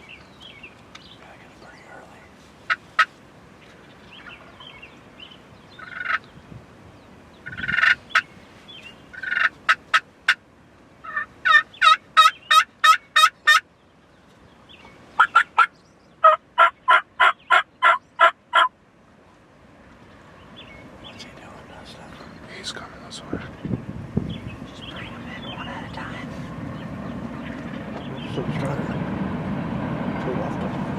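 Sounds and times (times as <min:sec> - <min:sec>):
turkey clucks: 0:02.7 - 0:03.2, 0:05.8 - 0:06.3, 0:07.4 - 0:08.3, 0:09.1 - 0:10.4, 0:11.0 - 0:13.6, 0:15.2 - 0:18.7
turkey yelps: 0:05.8 - 0:06.2, 0:07.4 - 0:08.3, 0:09.1 - 0:10.4, 0:11.0 - 0:13.6, 0:15.2 - 0:18.7.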